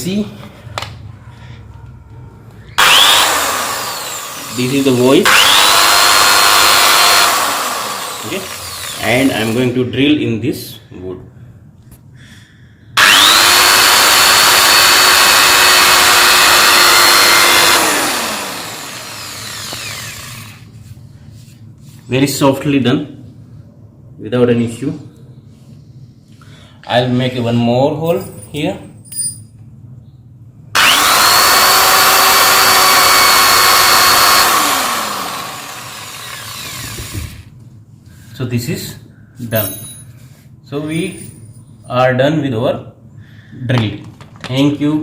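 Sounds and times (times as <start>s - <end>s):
electric drill boring into wood: 2.8s - 9.8s, 13.0s - 20.7s, 30.8s - 37.5s.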